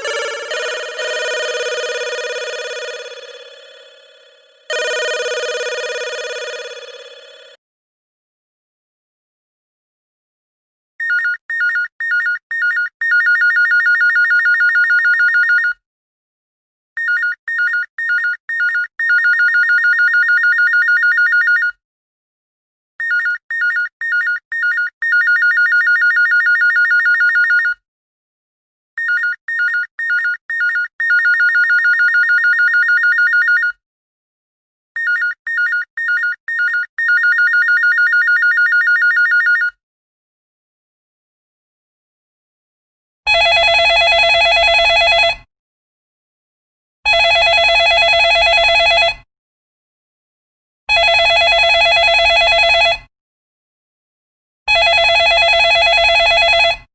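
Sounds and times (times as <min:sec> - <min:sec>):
telephone ringing: 0:00.0 - 0:07.6, 0:35.0 - 0:39.8, 0:43.3 - 0:45.5, 0:47.1 - 0:49.2, 0:50.9 - 0:53.0, 0:54.7 - 0:56.8.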